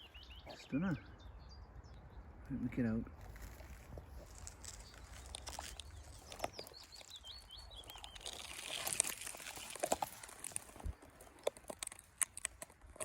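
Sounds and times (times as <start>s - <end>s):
songbird singing: 0.0s - 13.0s
twigs crackling and rustling: 3.1s - 13.0s
twigs snapping: 3.2s - 13.0s.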